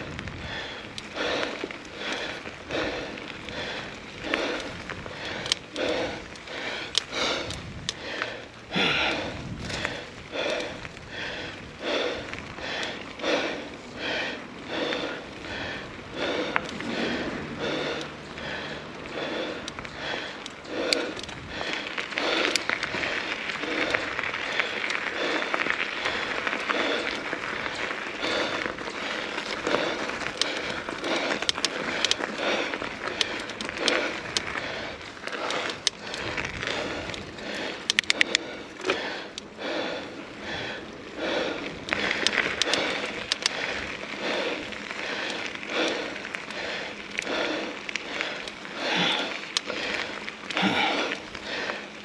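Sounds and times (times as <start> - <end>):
mountain bike on dirt trail: 0.0 - 52.0
sharp clicks: 37.1 - 39.5, 42.0 - 43.6.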